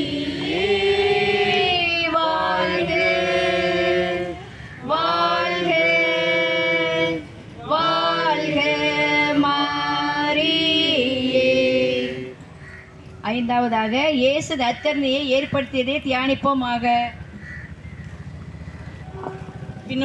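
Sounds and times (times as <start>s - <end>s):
group singing a hymn: 0.0s - 12.4s.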